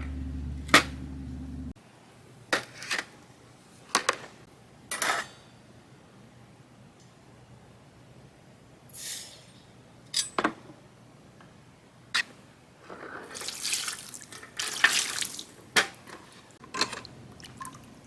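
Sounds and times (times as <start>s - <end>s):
tap water splashing in sink: 13.4s - 15.5s.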